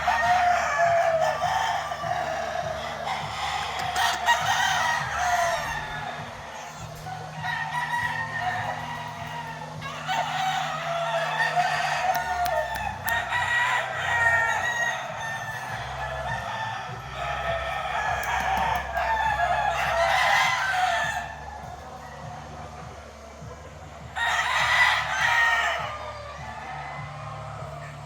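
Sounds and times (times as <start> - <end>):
roosters crowing: 0.0 - 28.0.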